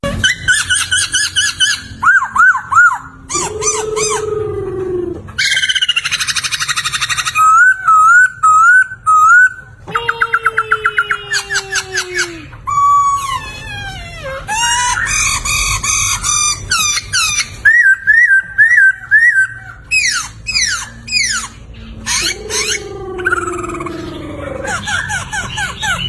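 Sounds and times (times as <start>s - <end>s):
bird singing whistled song: 0.2s - 4.2s, 5.4s - 9.6s, 16.8s - 23.9s.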